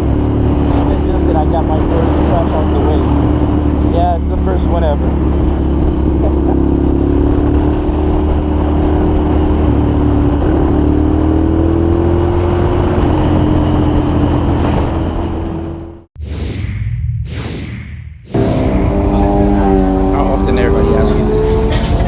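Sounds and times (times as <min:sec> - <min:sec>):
motorcycle engine running: 0:00.0 - 0:16.1, 0:18.3 - 0:22.0
sweeping whoosh: 0:16.2 - 0:21.6.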